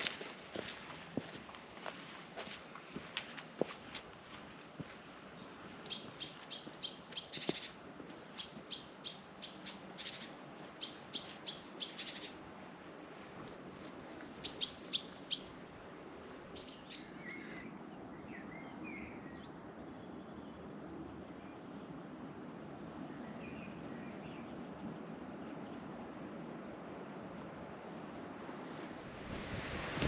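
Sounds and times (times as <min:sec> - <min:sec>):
songbird singing: 0:04.9 - 0:22.3, 0:22.9 - 0:26.0
soft bird chirps: 0:05.4 - 0:12.5, 0:13.8 - 0:15.6.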